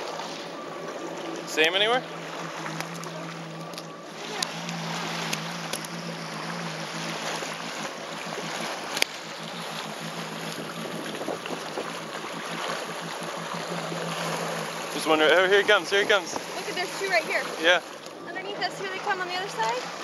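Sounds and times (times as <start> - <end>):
jet ski engine idling: 0.0 - 20.0
water splashing against hull: 0.0 - 20.0
wind on microphone: 10.1 - 12.8.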